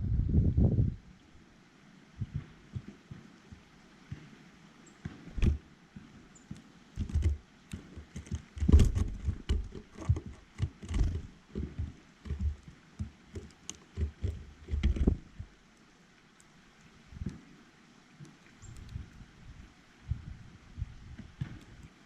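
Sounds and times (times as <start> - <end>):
knocks and thumps: 5.0 - 5.6, 7.0 - 15.5
sharp clicks: 7.0 - 15.5.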